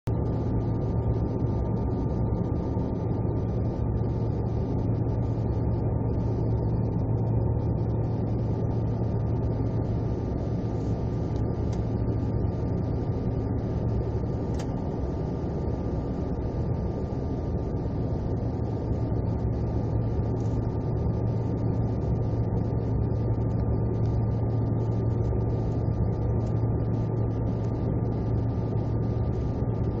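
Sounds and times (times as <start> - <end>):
aircraft engine hum: 0.0 - 30.0.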